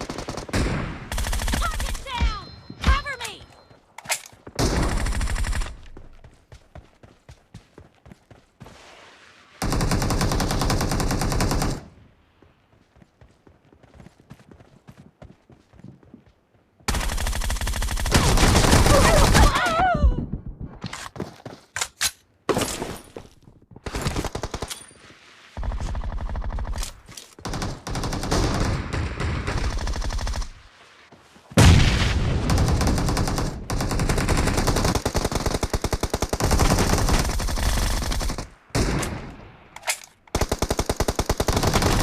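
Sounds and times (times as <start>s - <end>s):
video game automatic gunfire: 16.9s - 19.5s, 27.4s - 30.6s, 32.5s - 38.9s, 40.3s - 42.0s.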